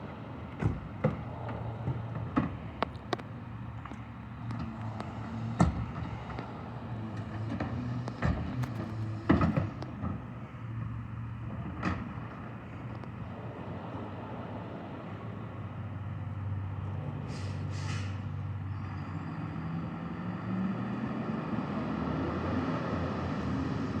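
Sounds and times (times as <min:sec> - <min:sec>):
garbage truck diesel engine: 0:00.0 - 0:24.0
air brake hisses: 0:17.2 - 0:18.3.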